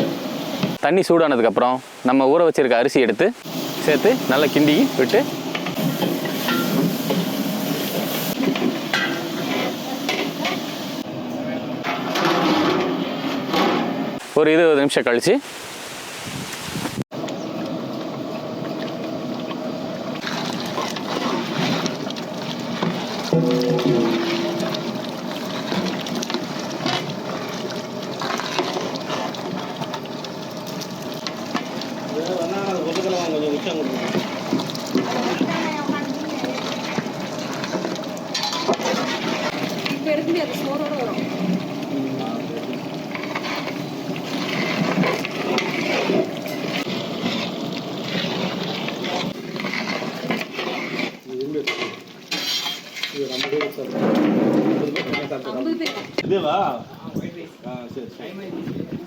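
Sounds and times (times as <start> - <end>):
people talking: 0.9 - 5.3, 32.1 - 34.1, 35.0 - 36.8, 39.9 - 41.2
pot of rice bubbling: 3.4 - 13.4, 17.0 - 56.8.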